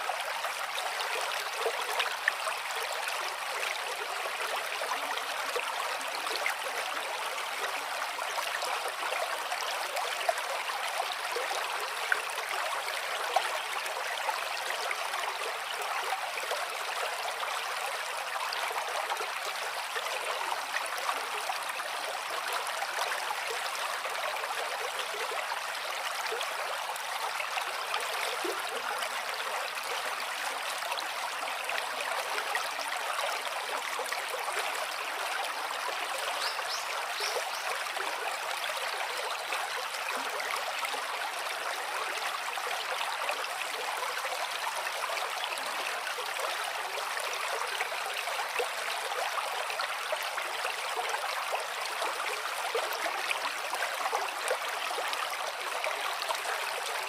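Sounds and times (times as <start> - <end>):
water flowing: 24.5 - 57.0.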